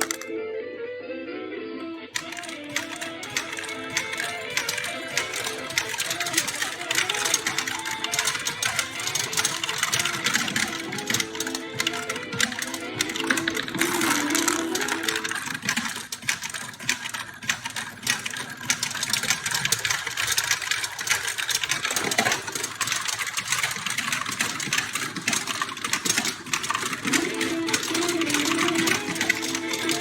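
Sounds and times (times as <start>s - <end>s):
steel balls clattering through pins: 0.0s - 0.3s, 2.2s - 30.0s.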